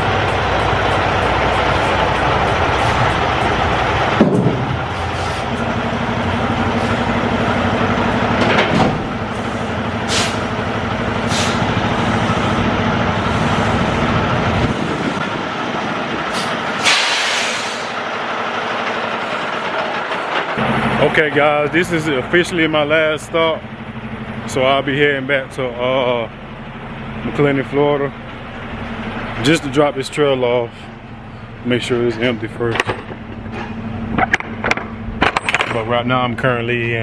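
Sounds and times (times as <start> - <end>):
truck engine rumble: 0.0 - 37.0
sharp knocks: 4.2 - 4.8
short hisses of air: 10.1 - 10.5, 16.3 - 17.9.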